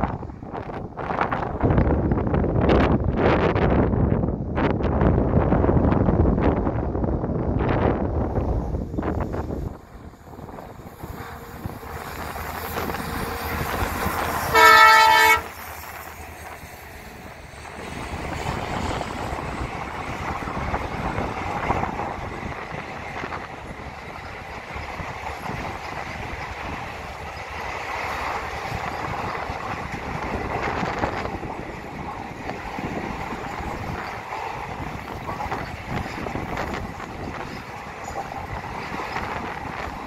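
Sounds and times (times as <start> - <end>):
train coaches rolling on track: 0.0 - 40.0
train horn blast: 13.6 - 15.6.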